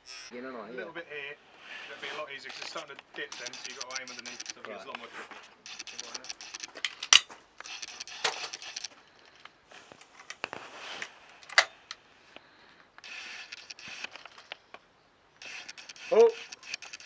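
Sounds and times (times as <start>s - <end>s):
sharp metallic clicks: 0.0s - 0.3s, 2.4s - 4.7s, 5.6s - 9.4s, 11.4s - 11.8s, 13.0s - 14.6s, 15.4s - 17.0s
rustling handling noise: 2.0s - 12.0s.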